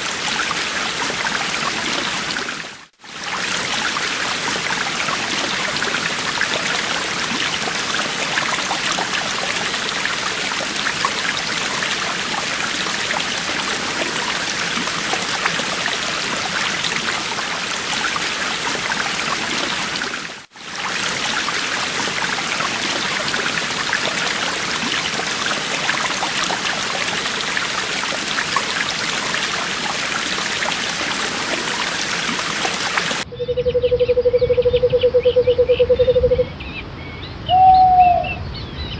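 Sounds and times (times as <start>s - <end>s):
stream trickling over stones: 0.0s - 33.3s
low pulsing bird call: 33.3s - 38.9s.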